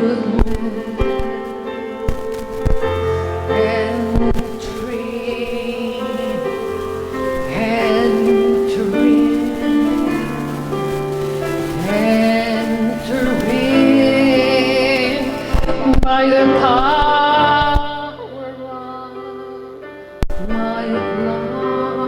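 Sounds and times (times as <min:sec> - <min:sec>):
slow worship music chords: 0:00.0 - 0:22.0
woman singing: 0:00.0 - 0:22.0.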